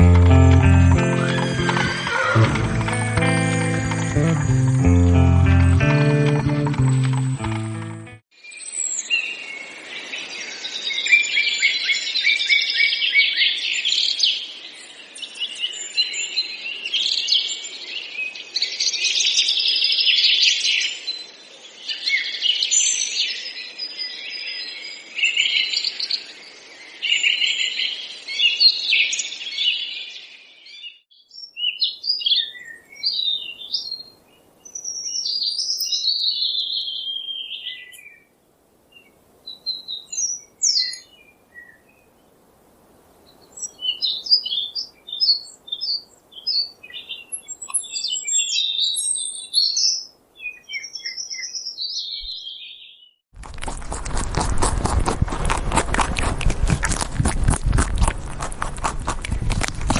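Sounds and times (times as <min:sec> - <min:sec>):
small birds chirping chorus: 0:08.4 - 0:38.3, 0:38.9 - 0:42.4, 0:43.2 - 0:53.2.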